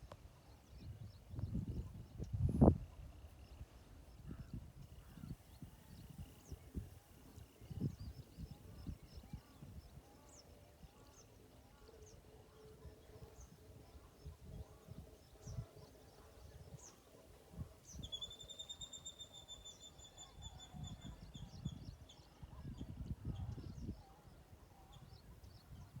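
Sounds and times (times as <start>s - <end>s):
bird chirps: 17.8s - 22.3s.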